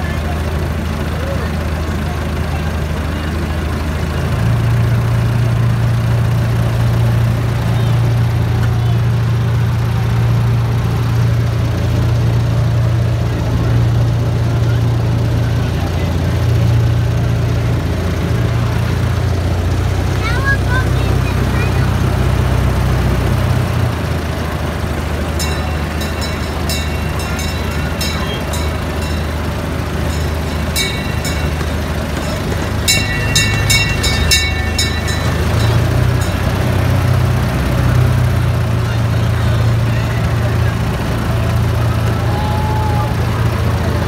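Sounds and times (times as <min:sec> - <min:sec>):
small train engine humming: 0:00.0 - 0:44.0
ringing metallic strikes: 0:25.4 - 0:37.8.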